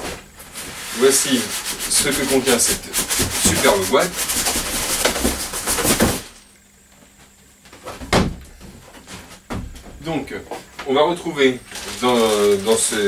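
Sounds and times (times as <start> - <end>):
cardboard rubbing and scraping: 0.5 - 6.3, 11.7 - 13.0.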